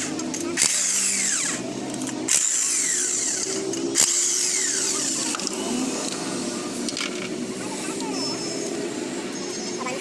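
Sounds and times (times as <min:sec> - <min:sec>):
power tool running with whine: 0:00.3 - 0:06.8.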